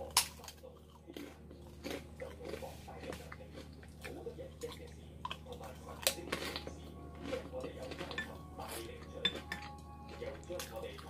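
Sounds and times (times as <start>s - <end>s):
soft chewing with wet smacks: 0.0s - 11.0s.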